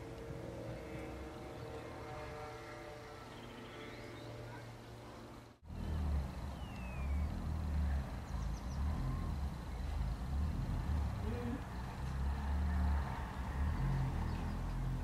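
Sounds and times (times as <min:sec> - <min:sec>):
distant engine drone: 0:00.0 - 0:15.0
high bird chirps: 0:06.5 - 0:07.3.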